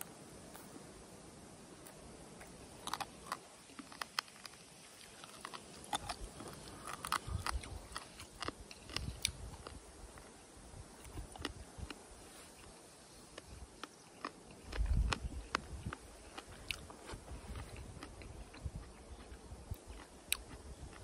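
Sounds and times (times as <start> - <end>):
person chewing meat: 2.8 - 9.8, 13.4 - 21.0.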